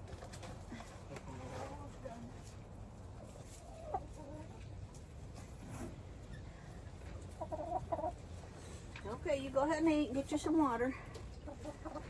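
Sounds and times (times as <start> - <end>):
hen clucking: 3.4 - 4.6, 7.2 - 8.4, 11.3 - 12.0.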